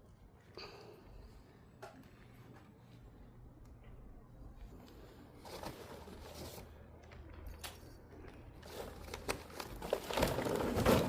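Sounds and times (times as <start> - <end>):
charcoal rustling and crunching: 8.5 - 11.0.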